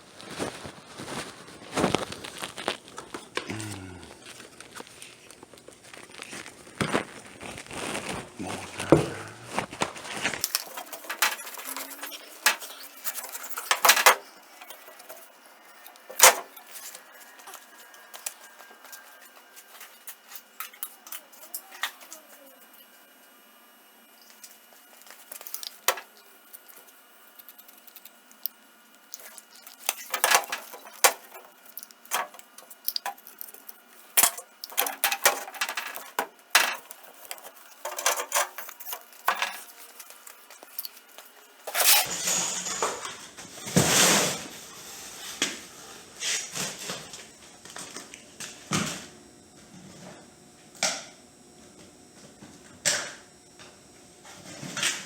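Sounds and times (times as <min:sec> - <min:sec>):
hard objects clicking and knocking: 0:10.4 - 0:22.1, 0:25.0 - 0:43.2.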